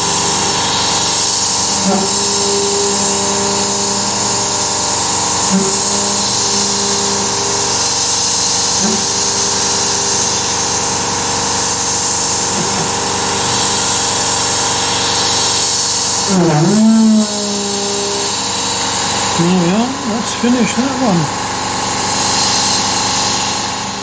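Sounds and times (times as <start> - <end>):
high spindle whine with cutting: 0.0 - 24.0
low motor hum: 0.0 - 24.0.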